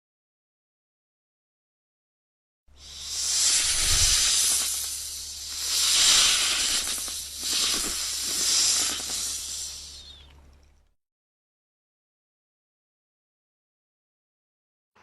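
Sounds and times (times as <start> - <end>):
animal hissing: 2.8 - 10.3.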